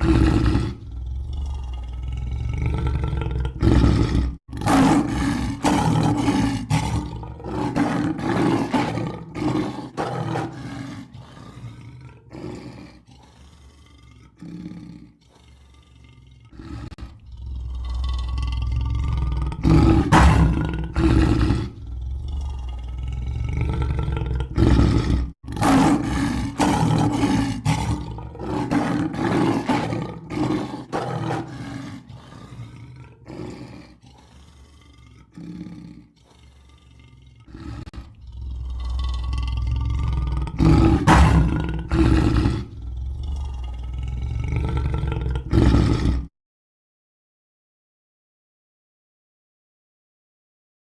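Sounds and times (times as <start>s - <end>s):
lion roaring: 0.0s - 46.3s.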